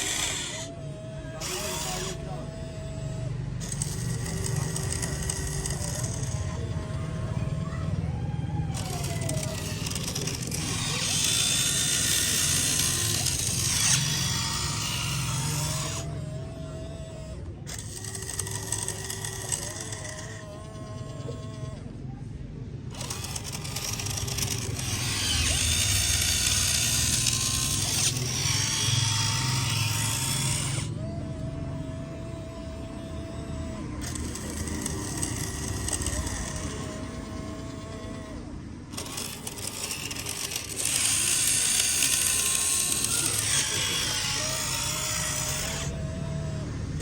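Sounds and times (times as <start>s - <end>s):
ratcheting gear rattle: 0.0s - 7.6s, 8.4s - 17.0s, 17.7s - 21.7s, 22.9s - 31.0s, 31.9s - 47.0s
toy excavator motors whirring: 0.0s - 47.0s.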